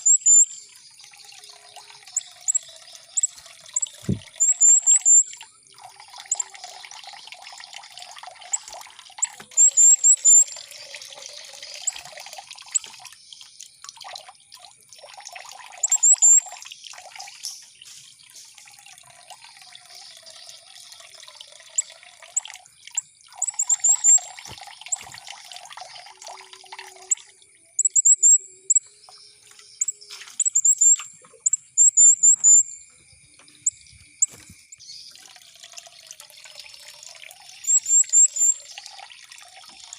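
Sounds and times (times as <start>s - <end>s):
thin steady high tone: 0.0s - 0.8s, 1.8s - 5.6s, 8.5s - 10.8s, 15.8s - 16.6s, 23.0s - 24.3s, 26.4s - 35.1s, 37.6s - 38.8s
high bird chirps: 0.0s - 0.9s, 2.0s - 5.4s, 6.3s - 6.5s, 8.5s - 13.5s, 15.8s - 16.6s, 21.8s - 25.2s, 27.8s - 35.2s, 37.6s - 38.9s
water trickling and babbling: 0.0s - 39.9s.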